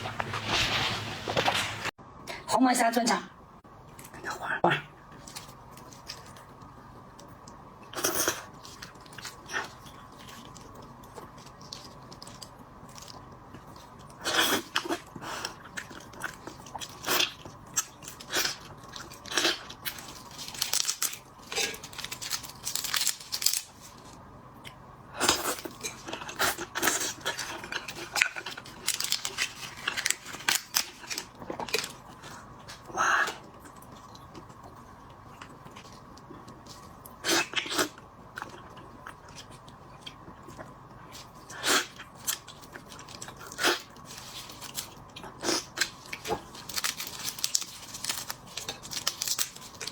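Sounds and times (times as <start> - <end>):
crunching shrimp shell: 15.8 - 23.8, 42.1 - 49.9.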